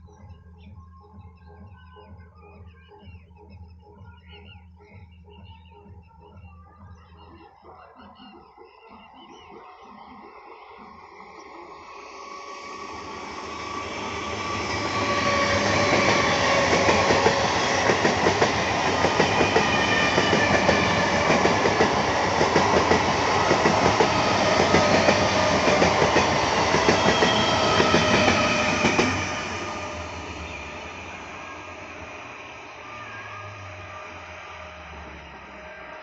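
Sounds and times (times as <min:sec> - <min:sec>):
train passing: 0:08.8 - 0:36.0.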